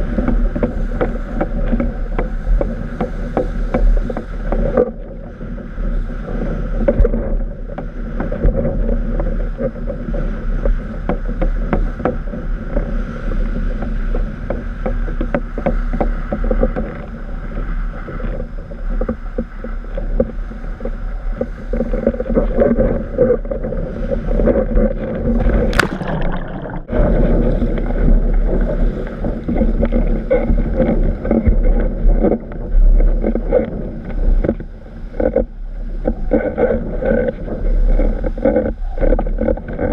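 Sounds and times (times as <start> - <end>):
water rushing against board: 0.0 - 39.9
wind buffeting microphone: 0.0 - 39.9.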